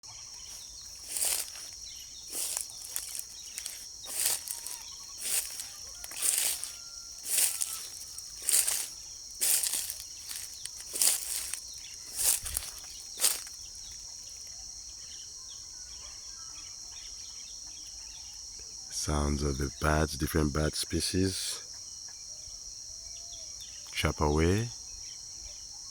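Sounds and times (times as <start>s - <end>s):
insects chirring: 0.0s - 25.9s.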